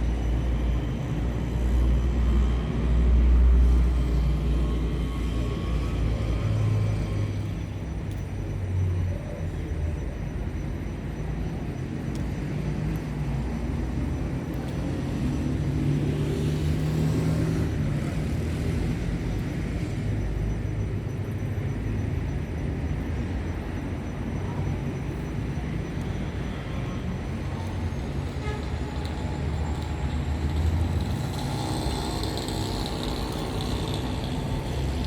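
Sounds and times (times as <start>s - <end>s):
passing vehicle rumble: 26.4s - 35.0s.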